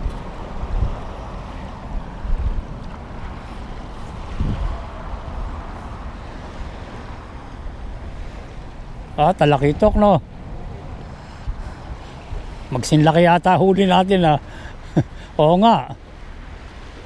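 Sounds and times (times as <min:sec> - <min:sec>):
wind buffeting microphone: 0:00.0 - 0:13.8
rushing water and waves: 0:00.0 - 0:17.0.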